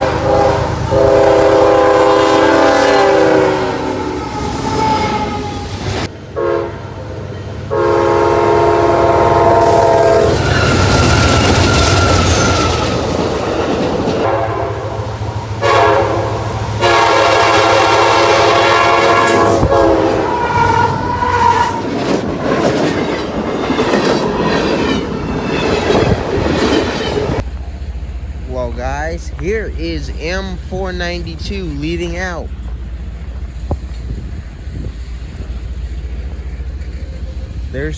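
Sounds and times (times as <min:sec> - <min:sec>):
train horn blasts: 0:00.0 - 0:05.6, 0:06.4 - 0:07.0, 0:07.7 - 0:12.8, 0:14.2 - 0:21.8
low rumble of locomotives: 0:00.0 - 0:37.9
wheels clattering on rails: 0:10.3 - 0:14.3, 0:21.0 - 0:37.9.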